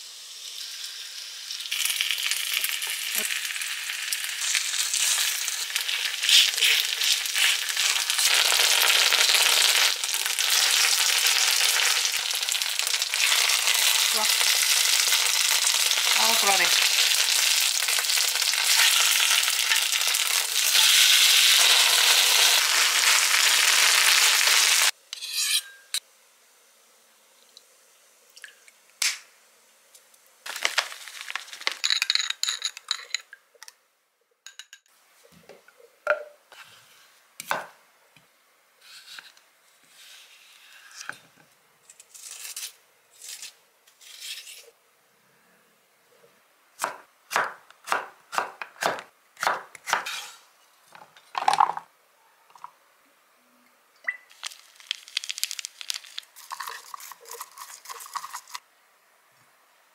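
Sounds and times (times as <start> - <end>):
pancake sizzling in oil: 0.0 - 25.0, 54.3 - 58.6.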